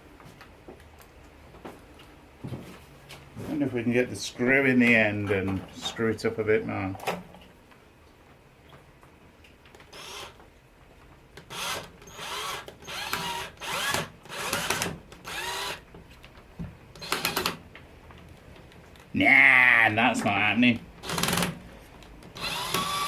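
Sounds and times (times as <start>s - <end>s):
cordless drill motor whine: 9.9s - 10.4s, 11.5s - 15.8s, 17.0s - 17.6s, 22.4s - 23.0s.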